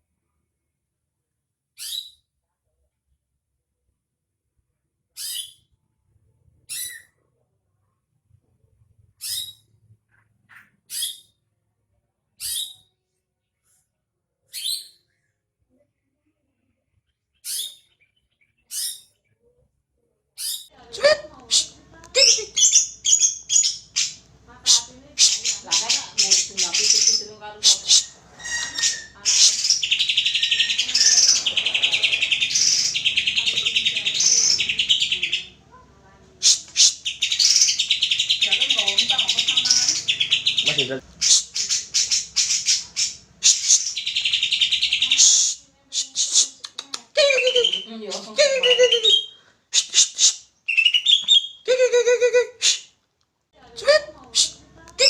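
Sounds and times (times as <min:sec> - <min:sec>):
bird giving bright calls: 0:20.4 - 0:35.6, 0:36.4 - 0:46.6.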